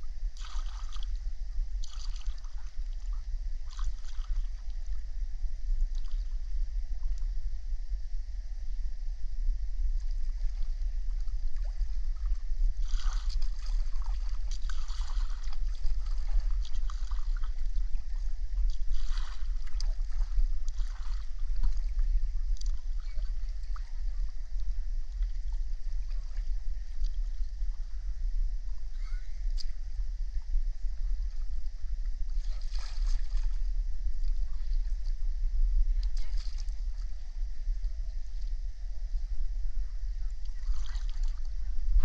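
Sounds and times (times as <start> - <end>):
water splashing and gurgling: 0.0 - 7.4, 9.8 - 42.0
low rumble: 0.0 - 42.0.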